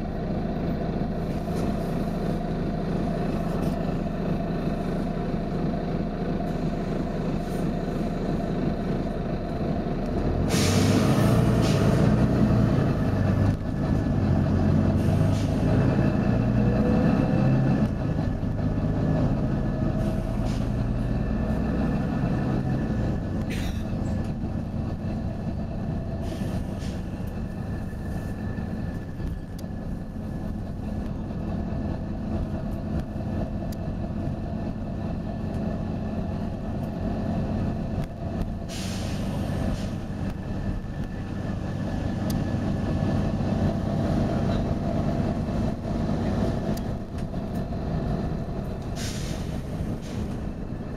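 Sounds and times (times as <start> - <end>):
bus diesel engine running: 0.0 - 50.9
compressed air hiss: 10.5 - 11.9, 38.7 - 40.0, 49.0 - 50.4.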